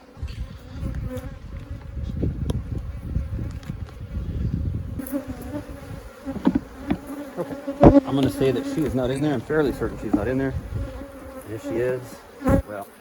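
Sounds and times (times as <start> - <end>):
honey bees buzzing: 0.0 - 13.0.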